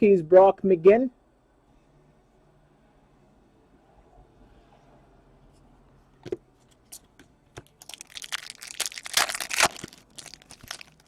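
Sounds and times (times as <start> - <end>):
plastic wrapper crinkling and tearing: 7.6 - 11.0.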